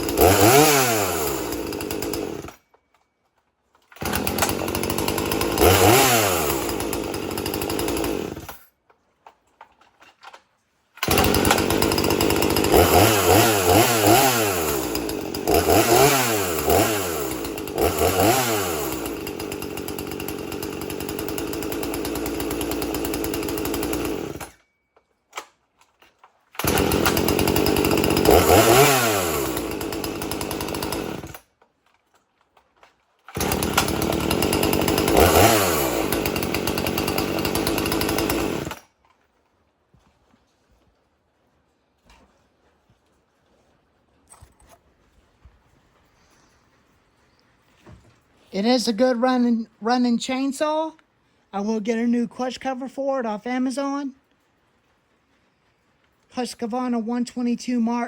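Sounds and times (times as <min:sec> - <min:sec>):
chainsaw revving and idling: 0:00.0 - 0:02.7, 0:03.9 - 0:08.7, 0:11.0 - 0:24.6, 0:26.5 - 0:31.5, 0:33.3 - 0:38.9.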